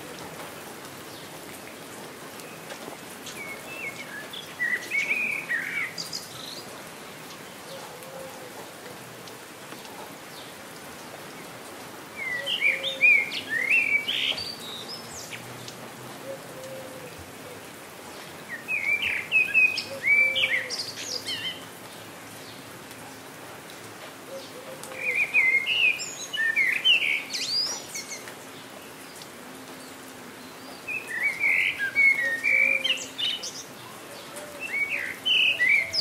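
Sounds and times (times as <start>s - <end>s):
rain hissing: 0.0s - 36.0s
songbird warbling: 30.9s - 33.5s.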